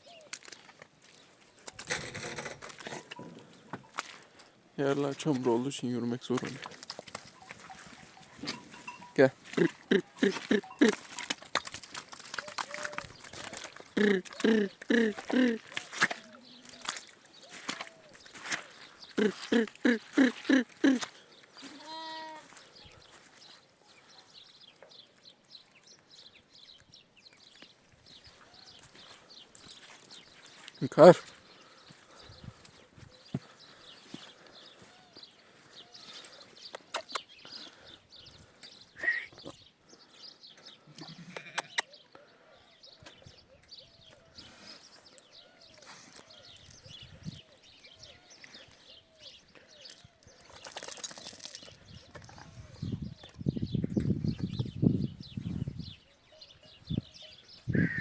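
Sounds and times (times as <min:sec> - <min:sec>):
birds twittering: 0:01.2 - 0:21.6, 0:22.5 - 0:40.9, 0:41.5 - 0:58.0
sheep bleating: 0:21.6 - 0:22.6, 0:41.0 - 0:41.8
low short bird call: 0:57.7 - 0:58.0.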